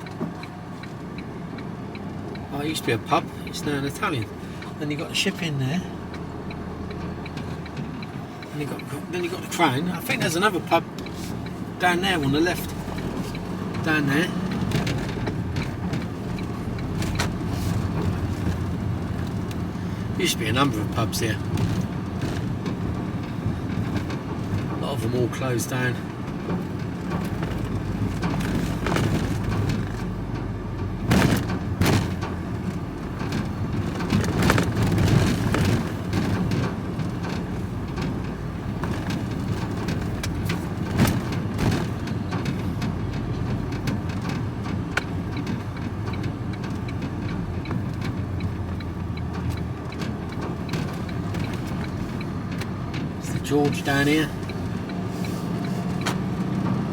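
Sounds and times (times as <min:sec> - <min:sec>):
engine and road noise in vehicle: 0:00.0 - 0:56.9
sharp knocks and rattles: 0:12.4 - 0:25.0, 0:25.8 - 0:56.8.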